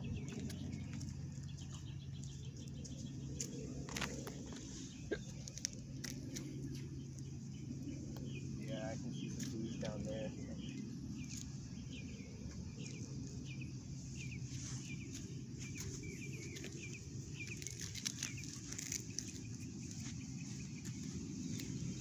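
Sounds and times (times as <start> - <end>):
low outdoor rumble: 0.0 - 22.0
small bird chirping: 0.0 - 22.0
footsteps on gravel: 0.1 - 6.9, 14.2 - 22.0.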